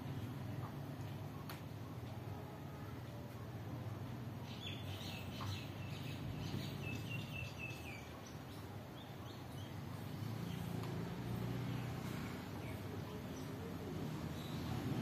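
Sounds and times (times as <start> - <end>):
birds chirping: 4.3 - 15.0.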